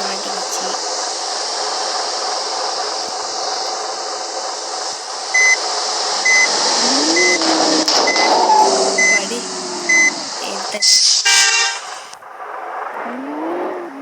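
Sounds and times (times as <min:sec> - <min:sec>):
road and cabin noise: 0:00.0 - 0:12.2
low rising tone: 0:06.4 - 0:10.4.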